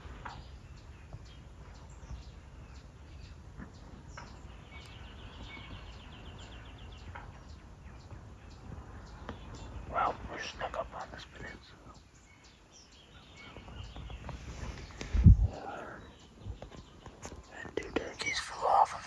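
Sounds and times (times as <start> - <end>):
songbirds chirping: 0.0 - 19.0
steady low rumble: 13.2 - 16.6.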